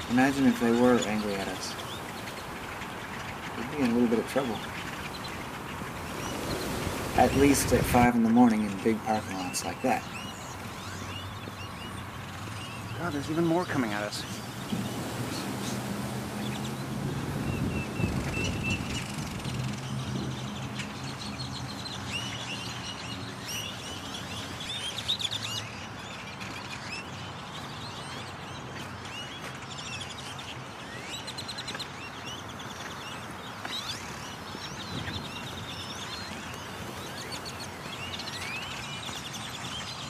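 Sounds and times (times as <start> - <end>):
flock of birds calling: 0.0 - 40.0.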